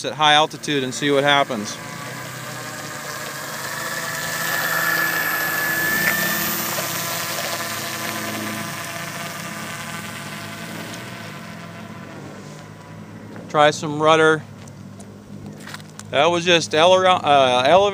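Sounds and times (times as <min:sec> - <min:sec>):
model airplane motor droning: 0:00.0 - 0:17.9.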